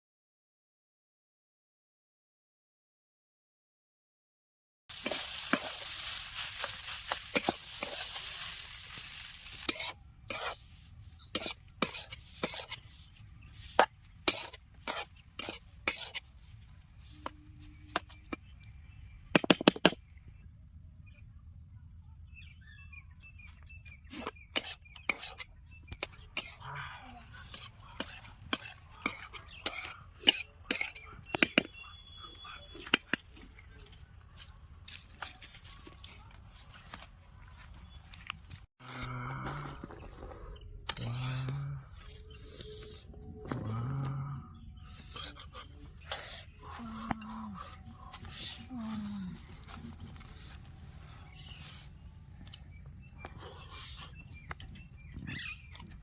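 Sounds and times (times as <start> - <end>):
fish sizzling in hot oil: 4.9 - 9.9.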